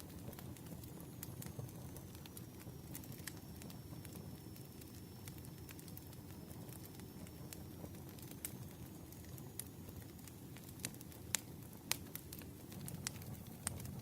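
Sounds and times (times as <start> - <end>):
campfire crackling: 0.0 - 14.0
low rumble of burning wood: 0.0 - 14.0.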